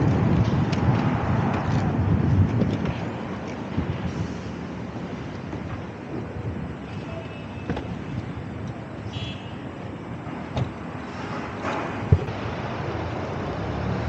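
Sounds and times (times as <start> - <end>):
wind on microphone: 0.0 - 10.3
traffic rumble: 0.0 - 14.0.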